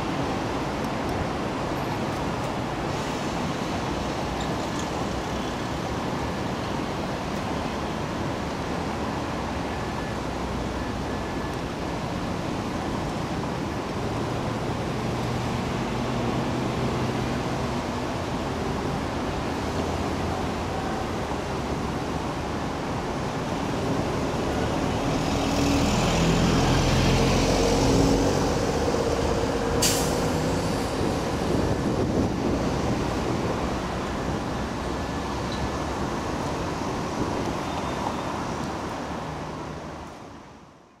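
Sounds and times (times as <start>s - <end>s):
train coaches rolling on tracks: 0.0s - 8.3s
road traffic noise: 0.0s - 41.0s.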